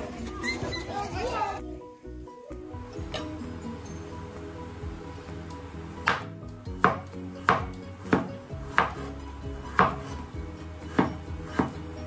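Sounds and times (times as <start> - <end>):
knife chopping on cutting board: 6.0 - 9.1, 9.7 - 10.2, 10.9 - 11.8.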